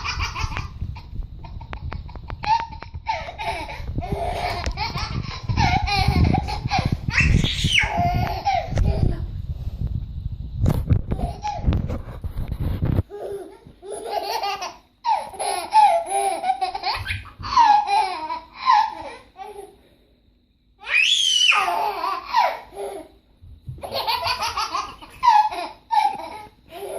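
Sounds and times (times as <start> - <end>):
baby laughing: 0.0 - 9.2, 11.1 - 11.7, 13.1 - 19.8, 21.4 - 23.1, 23.8 - 26.9
low rumbling noise: 0.0 - 13.1
baby squealing: 7.1 - 8.7, 20.8 - 23.0.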